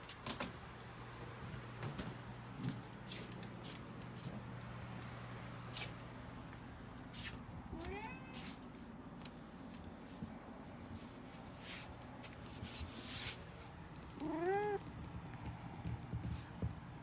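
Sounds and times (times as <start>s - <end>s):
cat meowing: 14.2s - 14.8s.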